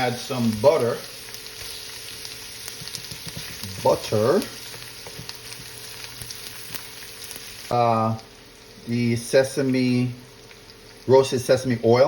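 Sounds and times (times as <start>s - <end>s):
food sizzling in a frying pan: 0.0s - 12.0s
stirring scrapes and clicks: 2.6s - 4.0s.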